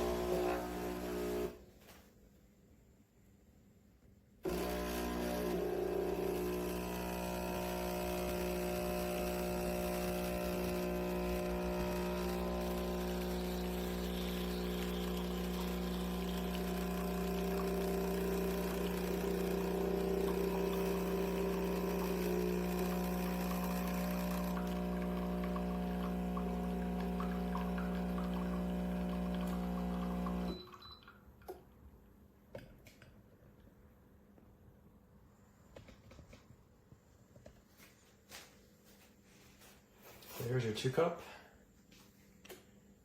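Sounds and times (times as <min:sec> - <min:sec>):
coffee pouring into cup: 0:00.0 - 0:01.5, 0:04.5 - 0:31.0
espresso machine pump humming: 0:00.0 - 0:01.6, 0:04.4 - 0:30.8.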